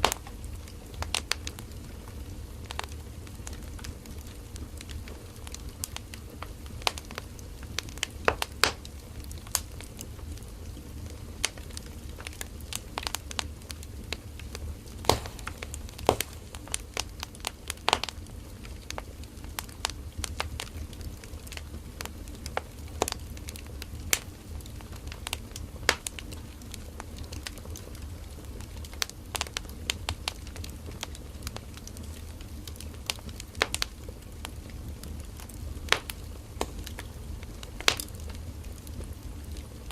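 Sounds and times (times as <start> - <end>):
firewood crackling and popping: 0.0 - 39.9
low rumble of flames: 0.0 - 39.9.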